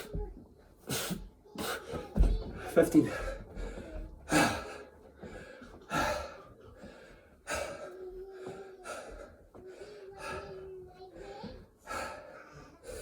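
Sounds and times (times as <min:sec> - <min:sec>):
man breathing hard and gasping: 0:00.9 - 0:02.2, 0:02.9 - 0:10.7.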